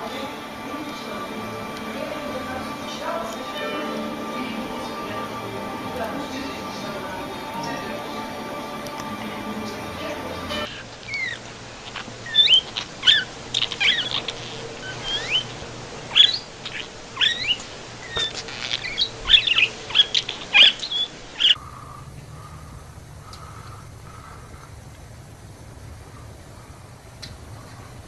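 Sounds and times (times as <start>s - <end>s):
bird chirping and squawking: 12.3s - 14.3s, 16.1s - 21.6s.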